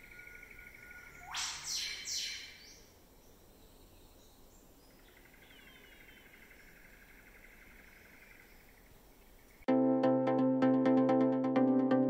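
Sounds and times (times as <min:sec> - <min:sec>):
pulsing insect trill: 0:00.0 - 0:01.7
loud noisy bird calls: 0:00.0 - 0:02.8.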